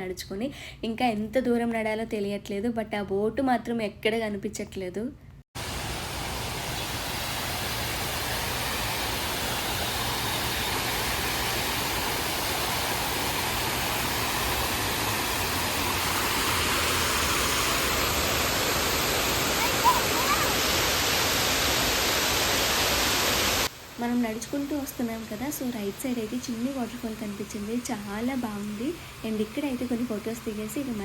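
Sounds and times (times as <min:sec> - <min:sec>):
small waterfall rushing: 0:05.6 - 0:27.0.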